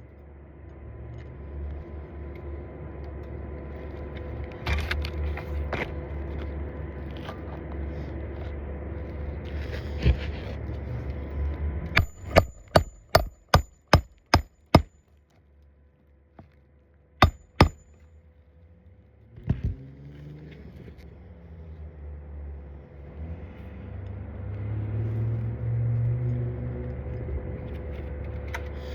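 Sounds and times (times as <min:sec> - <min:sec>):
steady low hum: 0:00.0 - 0:24.4
hammer striking roof shingles: 0:12.0 - 0:14.9, 0:17.2 - 0:17.9.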